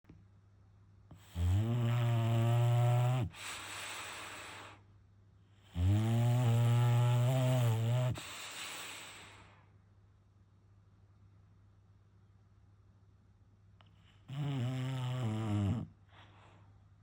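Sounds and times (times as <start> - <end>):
dog snoring: 1.1 - 4.8, 5.5 - 9.6, 14.0 - 16.5.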